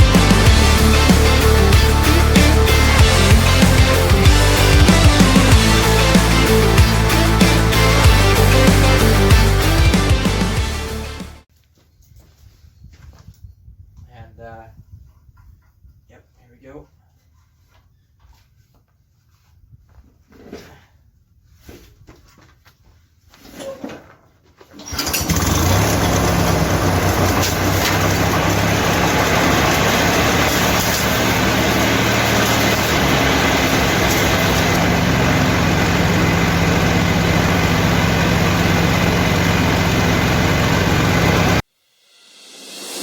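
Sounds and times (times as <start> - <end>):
lawn tractor engine running: 0.0 - 11.4, 24.8 - 41.6.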